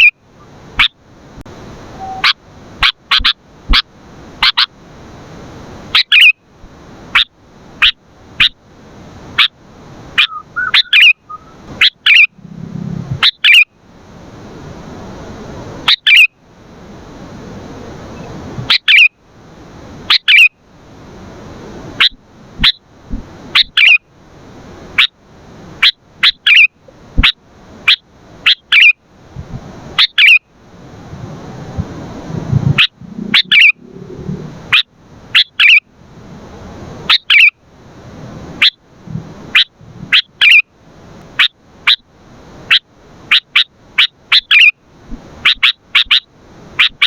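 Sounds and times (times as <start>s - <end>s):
background hiss: 0.0s - 47.0s
bird chirping sharply: 2.0s - 3.8s, 6.0s - 6.4s, 10.2s - 12.5s, 13.2s - 13.7s, 15.9s - 16.3s, 18.2s - 19.1s, 20.1s - 20.5s, 23.6s - 24.0s, 27.9s - 29.0s, 30.0s - 30.4s, 32.8s - 34.0s, 34.7s - 35.8s, 37.1s - 37.5s, 39.6s - 40.6s, 42.7s - 44.7s.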